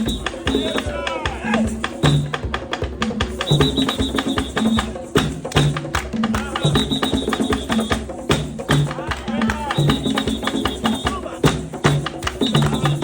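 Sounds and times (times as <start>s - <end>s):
percussive knocks: 0.0s - 13.0s.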